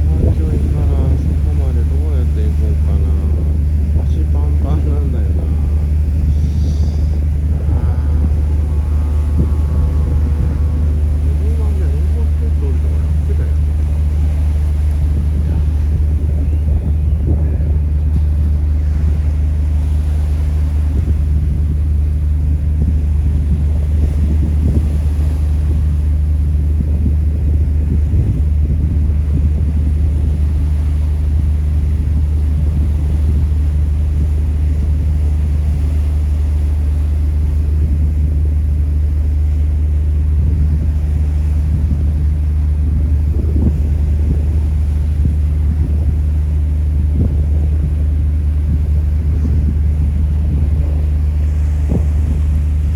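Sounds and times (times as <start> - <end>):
ferry engines droning: 0.0 - 52.9.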